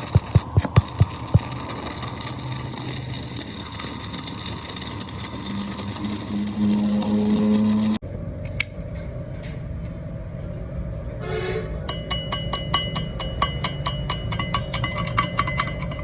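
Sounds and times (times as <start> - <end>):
mechanical drone with hum: 0.0 - 11.2
hammer on metal: 11.9 - 15.8.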